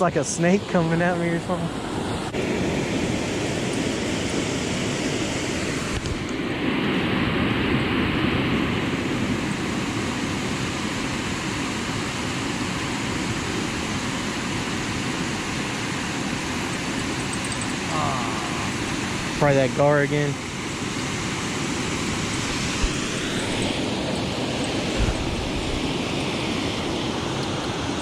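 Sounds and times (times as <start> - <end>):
waterfall rushing: 13.6 - 28.0.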